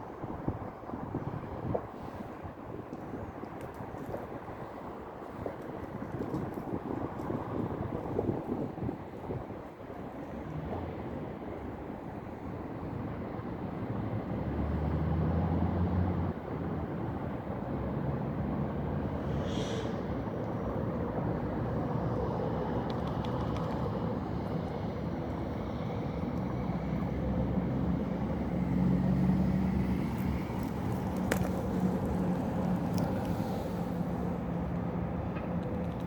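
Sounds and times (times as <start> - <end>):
road traffic rumble: 0.0 - 36.0
vehicle passing by: 14.4 - 16.4, 25.5 - 35.1.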